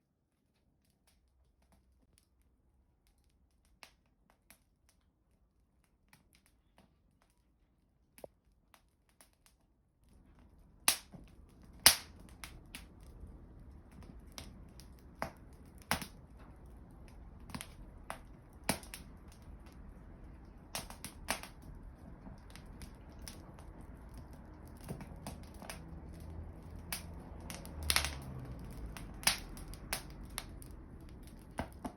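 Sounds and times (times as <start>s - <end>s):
wood fire crackling and popping: 8.1s - 31.9s
low rush of flame: 10.0s - 31.9s.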